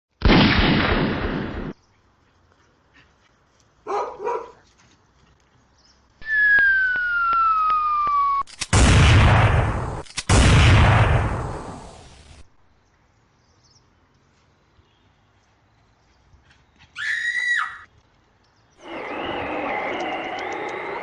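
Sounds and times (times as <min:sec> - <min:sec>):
falling whistle with ticks: 0:06.2 - 0:08.5, 0:18.8 - 0:21.0
loud rushing bursts: 0:08.2 - 0:12.4, 0:18.8 - 0:21.0
loud hissing burst: 0:08.7 - 0:12.5.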